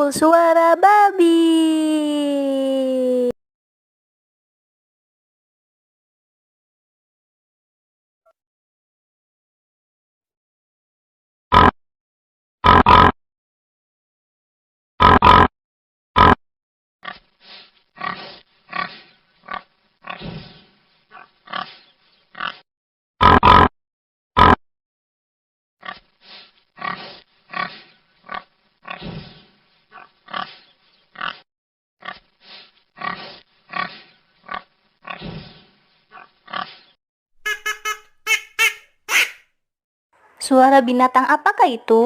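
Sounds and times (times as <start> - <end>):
pig grunting: 18.0 - 21.8, 22.4 - 22.6, 26.8 - 30.6, 31.2 - 32.2, 33.0 - 36.9
duck quacking: 37.4 - 39.4.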